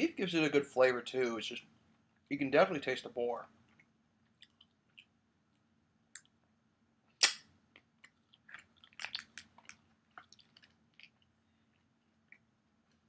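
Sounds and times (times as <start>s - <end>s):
wet mouth clicks and smacks: 3.7s - 5.2s, 7.2s - 11.3s.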